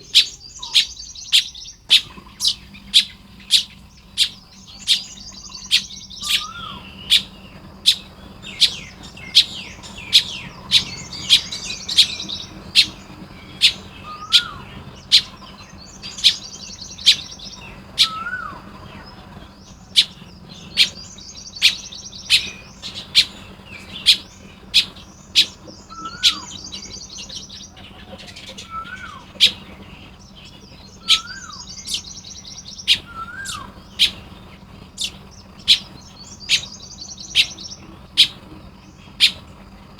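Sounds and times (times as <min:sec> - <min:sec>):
weaver birds chattering: 0:00.0 - 0:39.9.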